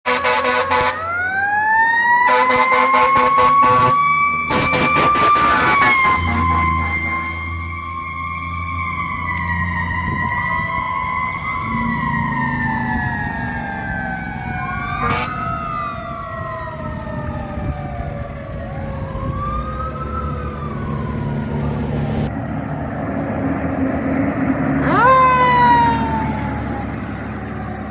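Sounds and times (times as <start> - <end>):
siren swooping up and down: 0.1 - 22.3
siren winding down: 0.1 - 22.3, 24.8 - 27.9
diesel engines rumbling: 0.1 - 27.9.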